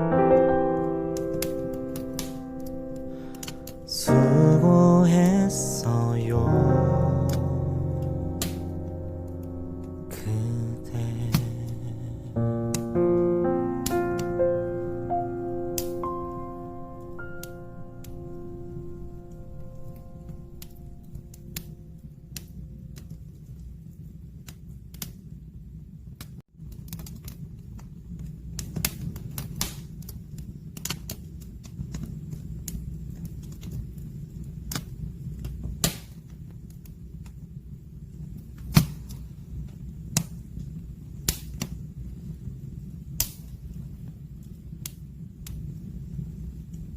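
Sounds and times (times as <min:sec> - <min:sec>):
fire crackles and pops: 0:00.0 - 0:46.9
rush of fireplace flame: 0:01.2 - 0:04.1, 0:19.8 - 0:46.9.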